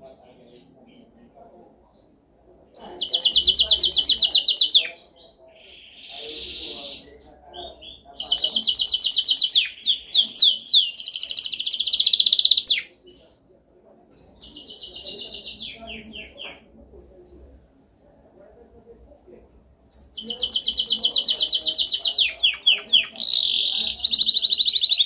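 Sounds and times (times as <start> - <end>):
canary singing trills: 2.8 - 16.7, 19.9 - 25.0.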